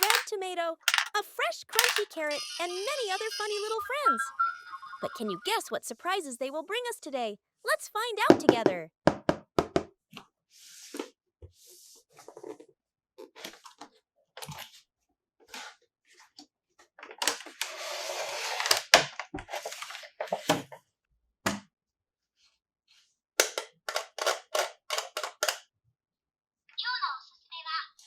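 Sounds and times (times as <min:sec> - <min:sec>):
sharp clicks: 0:00.0 - 0:00.3, 0:00.9 - 0:02.1
plastic toy pieces clicking: 0:00.0 - 0:02.2, 0:23.4 - 0:25.6.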